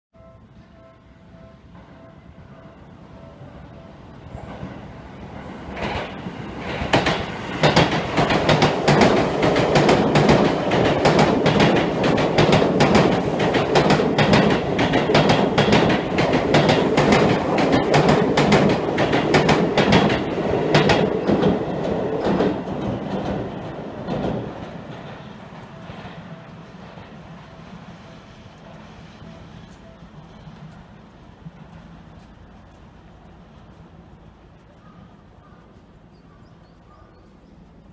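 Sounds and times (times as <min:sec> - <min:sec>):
train rumbling past: 0:00.2 - 0:37.9
train wheel clicks: 0:05.7 - 0:27.2.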